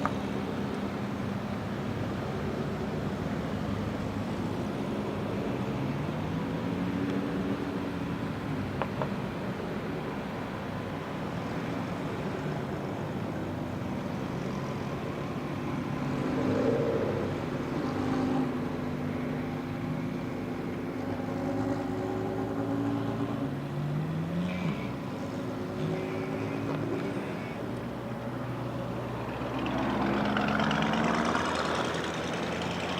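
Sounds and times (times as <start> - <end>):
car engines idling: 0.0 - 32.9
car engine revving: 20.9 - 32.9.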